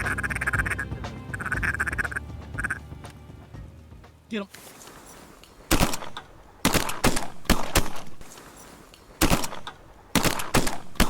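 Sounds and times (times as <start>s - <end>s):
shotgun shots: 5.7s - 8.3s, 9.2s - 11.0s.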